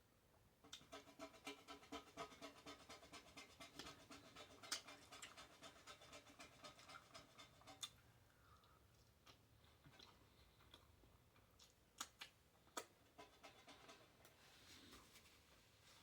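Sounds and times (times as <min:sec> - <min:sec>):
rapid rhythmic panting: 0:00.8 - 0:07.9, 0:13.2 - 0:14.2.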